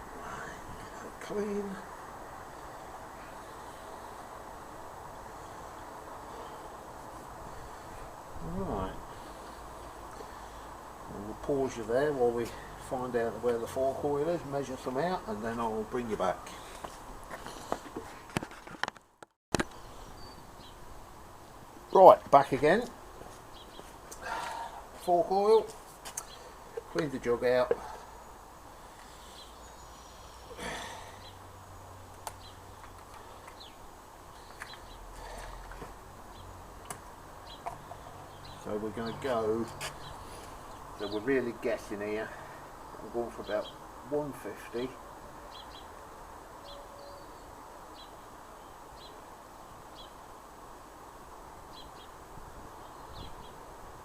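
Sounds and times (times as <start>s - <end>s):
steady background hiss: 0.0s - 18.1s, 19.6s - 54.0s
bird chirping: 19.7s - 20.8s, 26.2s - 35.7s, 36.3s - 42.2s, 44.8s - 49.2s.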